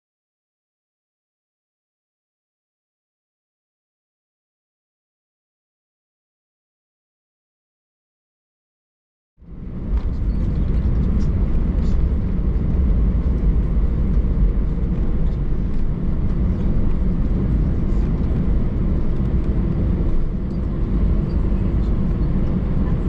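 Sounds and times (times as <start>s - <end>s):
low rumble of jet engines: 9.4s - 23.0s.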